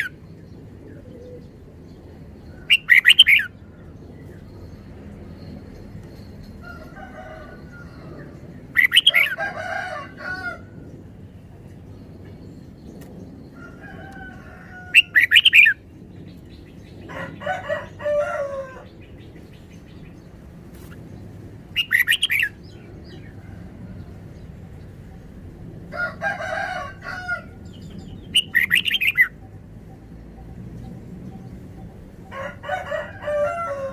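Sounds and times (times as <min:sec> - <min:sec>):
bird singing: 0:00.0 - 0:09.4, 0:14.8 - 0:20.4, 0:21.0 - 0:25.4, 0:27.4 - 0:32.3.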